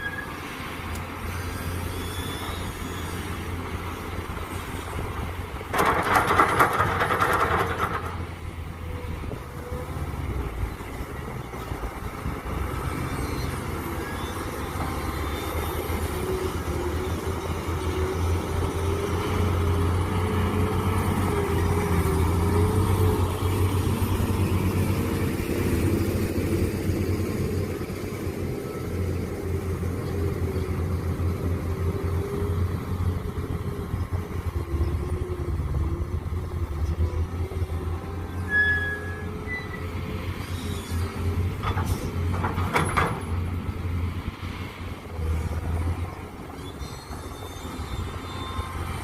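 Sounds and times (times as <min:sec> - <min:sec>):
excavator engine running: 0:00.6 - 0:38.5.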